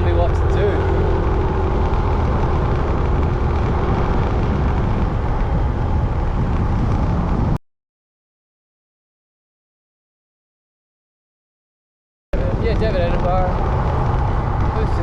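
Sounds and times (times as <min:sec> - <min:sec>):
motorbike wind and road noise: 0:00.0 - 0:07.6, 0:12.4 - 0:15.0.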